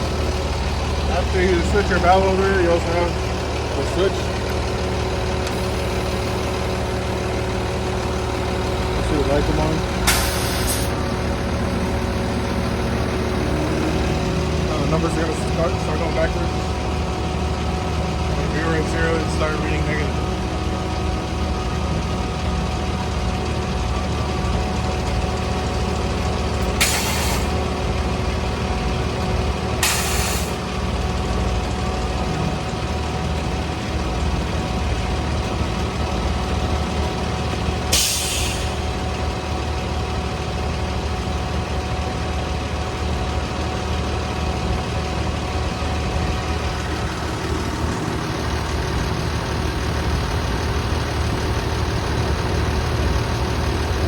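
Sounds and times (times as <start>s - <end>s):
truck engine and pump hum: 0.0s - 54.0s
air release hisses: 10.0s - 11.0s, 26.8s - 27.5s, 29.8s - 30.6s, 37.9s - 38.8s.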